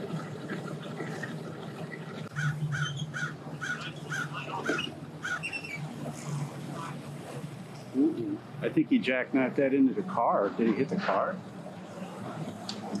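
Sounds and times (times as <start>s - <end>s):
low engine hum: 0.0s - 13.0s
crow calling harshly: 2.3s - 5.8s.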